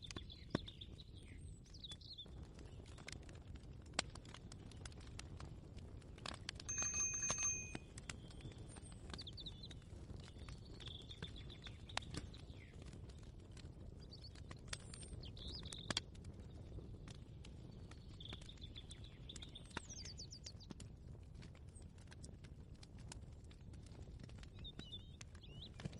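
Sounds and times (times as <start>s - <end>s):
small birds chirping: 0.0s - 3.2s, 6.7s - 13.2s, 13.8s - 20.8s, 24.4s - 25.9s.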